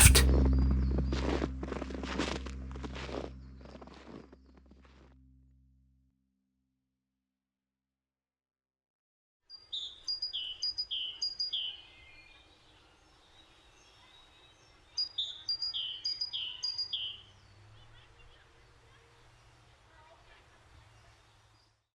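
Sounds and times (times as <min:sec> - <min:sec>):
faint outdoor background noise: 0:09.5 - 0:21.9
songbird chirping: 0:09.5 - 0:21.9.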